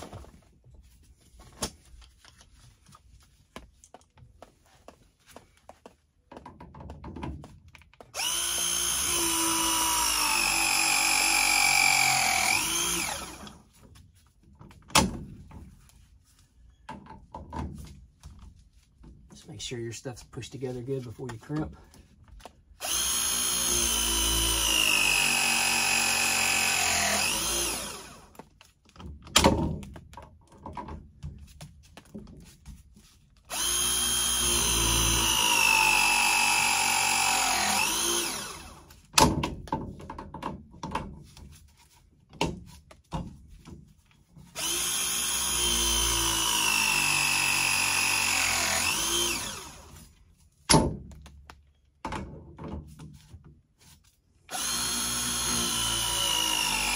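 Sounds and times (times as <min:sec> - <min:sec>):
press tool motor whining: 0:08.2 - 0:13.6, 0:22.8 - 0:28.3, 0:33.5 - 0:38.8, 0:44.6 - 0:50.0, 0:54.5 - 0:56.9.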